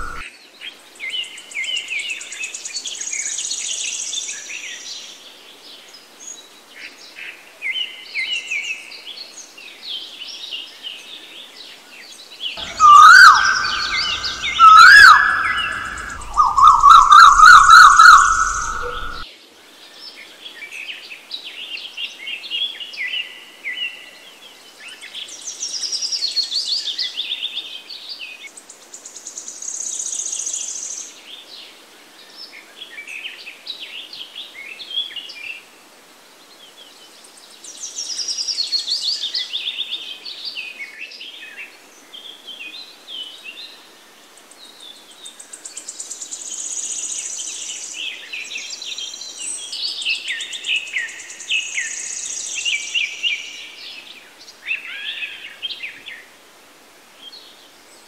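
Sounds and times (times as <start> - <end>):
birds singing and chirping: 0.0 - 0.2, 12.2 - 19.2
fast high bird trill: 12.6 - 19.2.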